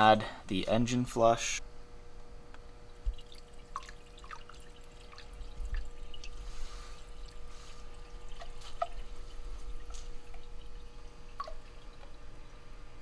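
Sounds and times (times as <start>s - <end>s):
liquid dripping and splashing: 2.6s - 12.6s.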